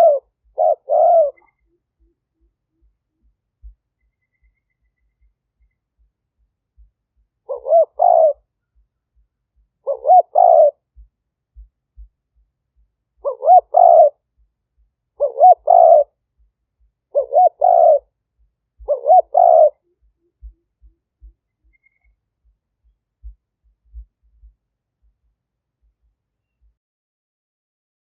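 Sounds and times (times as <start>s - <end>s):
dove cooing: 0.0s - 2.5s, 7.5s - 8.5s, 9.8s - 10.8s, 13.2s - 14.2s, 15.2s - 16.1s, 17.1s - 18.1s, 18.8s - 21.8s.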